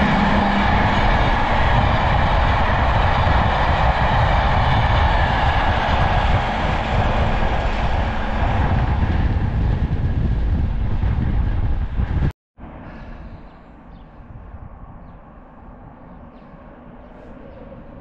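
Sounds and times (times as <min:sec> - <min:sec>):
train wheels rumbling on rails: 0:00.0 - 0:12.3.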